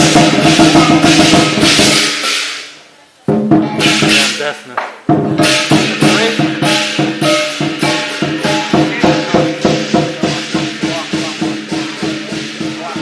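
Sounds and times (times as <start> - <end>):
cymbals crashing: 0.0 - 13.0
drum beating: 0.0 - 13.0
gong ringing: 5.4 - 12.8.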